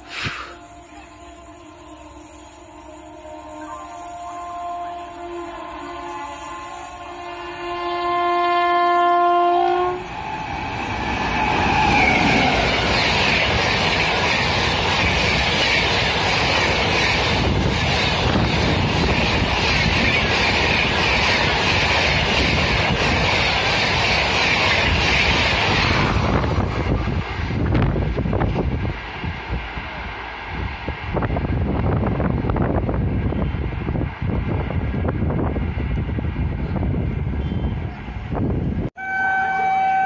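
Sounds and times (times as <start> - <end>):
train coaches rushing past: 0.0 - 40.0
locomotive horn blast: 0.3 - 10.2, 39.0 - 40.0.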